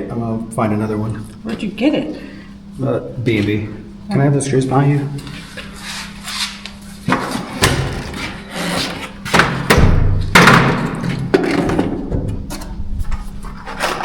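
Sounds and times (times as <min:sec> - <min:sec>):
knocks and thumps: 0:09.3 - 0:12.6.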